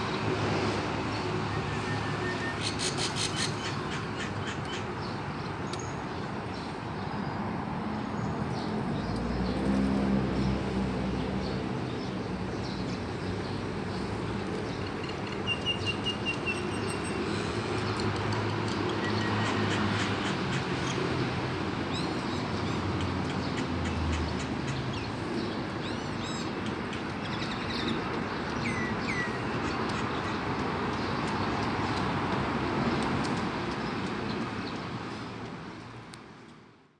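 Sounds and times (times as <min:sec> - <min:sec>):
outdoor background noise: 0:00.0 - 0:36.9
wild birds calling: 0:01.5 - 0:06.7, 0:21.8 - 0:31.6.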